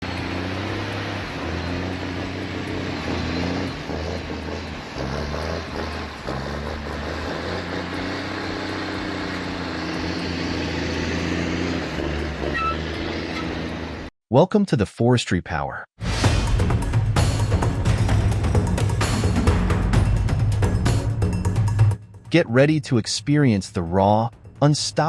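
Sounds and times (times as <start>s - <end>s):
large vehicle engine revving: 0.0s - 14.1s.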